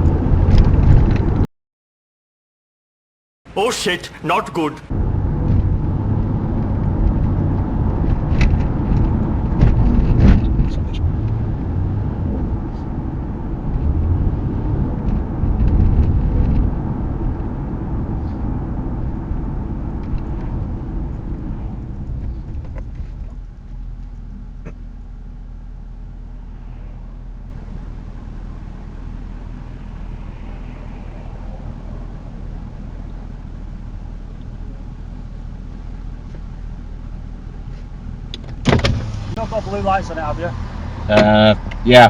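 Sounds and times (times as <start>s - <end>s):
road noise: 26.4s - 34.6s, 38.8s - 42.0s.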